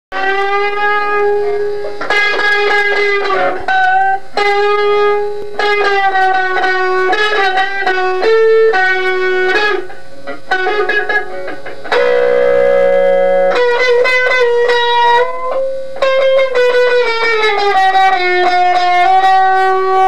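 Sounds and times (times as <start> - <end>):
electric guitar sustained notes: 0.1 - 20.0.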